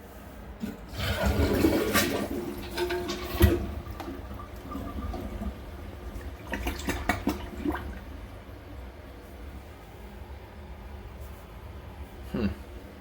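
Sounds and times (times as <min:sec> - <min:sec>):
water trickling in a toilet: 0:00.6 - 0:09.0.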